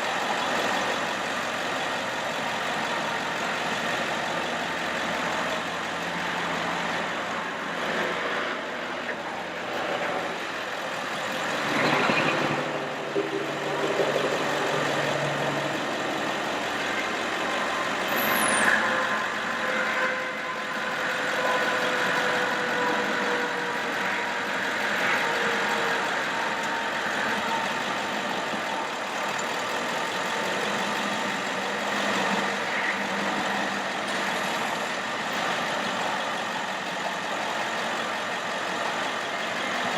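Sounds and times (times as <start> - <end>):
faint hydraulic pump whine: 0.0 - 39.9
truck engine running: 0.0 - 39.9.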